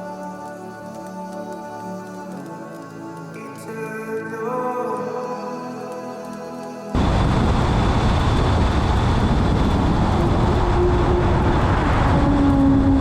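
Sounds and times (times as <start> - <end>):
car engine and road noise: 7.0 - 13.0.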